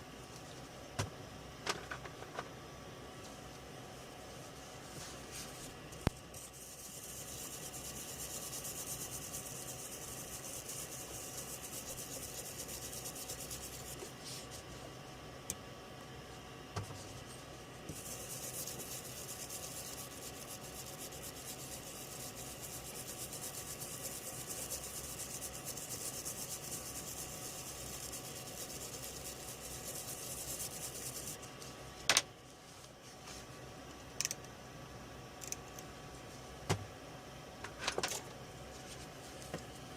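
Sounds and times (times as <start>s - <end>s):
scratchy rubbing: 6.3s - 14.5s, 17.9s - 31.4s.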